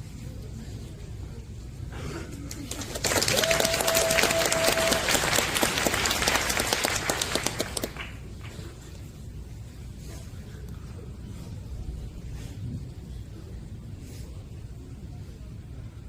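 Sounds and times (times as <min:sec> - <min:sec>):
audience applauding: 0:02.5 - 0:08.6.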